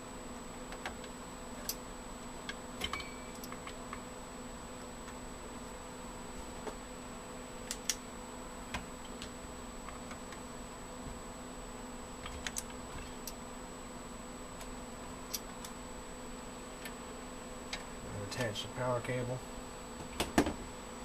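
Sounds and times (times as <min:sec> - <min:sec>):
steady low hum: 0:00.0 - 0:21.0
faint high whine: 0:02.8 - 0:03.6.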